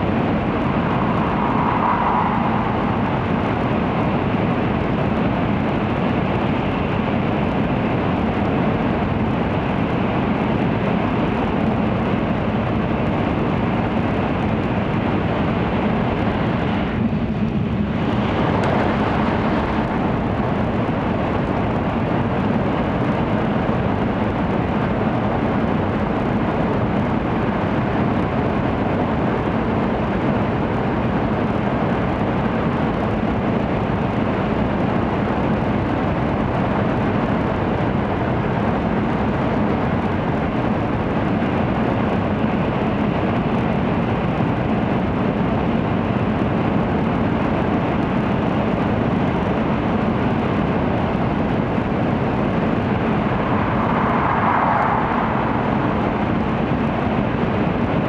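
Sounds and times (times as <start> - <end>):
low hum: 0.0 - 6.0, 51.0 - 58.0
train cabin rumble and rushing: 0.0 - 6.7, 50.3 - 58.0.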